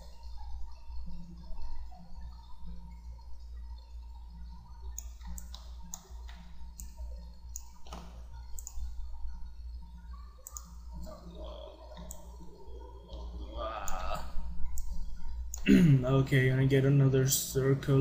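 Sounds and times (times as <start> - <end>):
low electrical hum: 0.0 - 18.0
computer mouse clicking: 4.9 - 8.9, 10.4 - 11.2, 11.9 - 12.4, 13.1 - 15.7.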